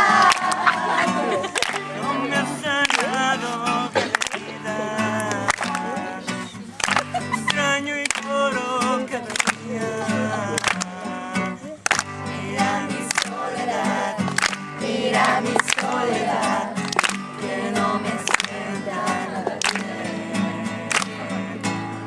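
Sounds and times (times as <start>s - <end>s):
person singing: 0.0s - 14.4s
acoustic guitar strumming: 0.0s - 22.0s.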